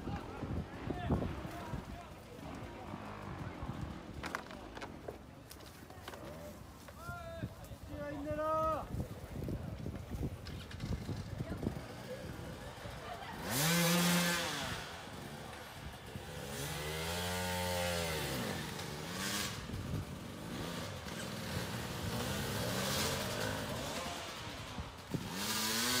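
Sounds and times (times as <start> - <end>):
small engine revving: 10.5 - 26.0.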